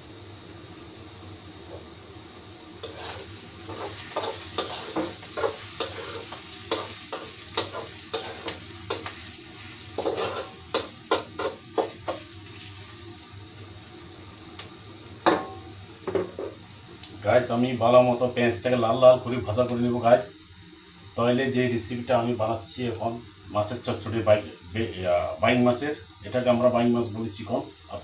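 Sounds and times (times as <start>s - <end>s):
onions frying in oil: 0.0s - 28.0s
spatula scraping a pan: 2.8s - 12.7s.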